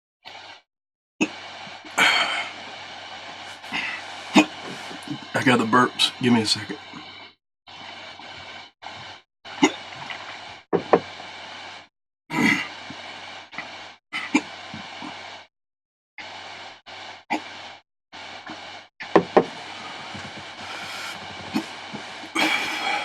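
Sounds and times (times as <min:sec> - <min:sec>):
man sighing and breathing heavily: 0:02.0 - 0:02.6, 0:19.6 - 0:23.0
throat and mouth sounds: 0:03.5 - 0:05.4, 0:19.3 - 0:23.0.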